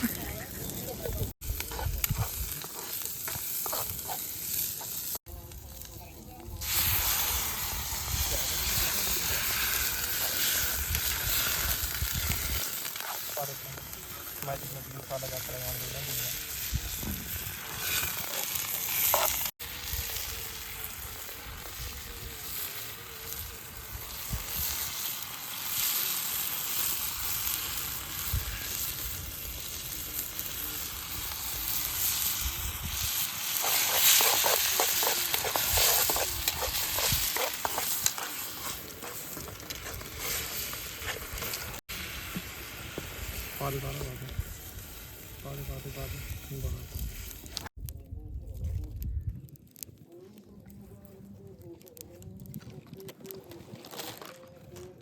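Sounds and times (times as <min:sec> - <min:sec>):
onions sizzling in a pan: 0:00.0 - 0:47.7
quick crackles and scrapes: 0:01.2 - 0:05.2, 0:06.6 - 0:21.0, 0:30.9 - 0:55.0.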